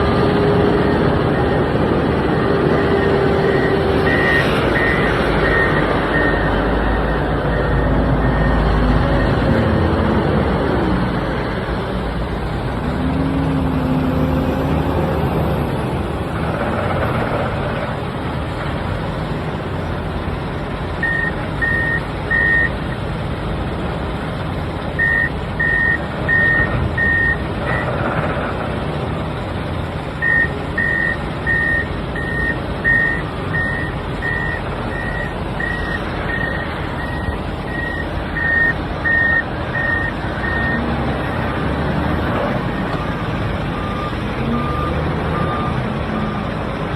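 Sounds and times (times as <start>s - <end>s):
wheel loader engine running: 0.0s - 46.9s
reversing alarm beeping: 0.6s - 10.0s, 21.0s - 22.8s, 25.0s - 27.9s, 30.2s - 46.5s.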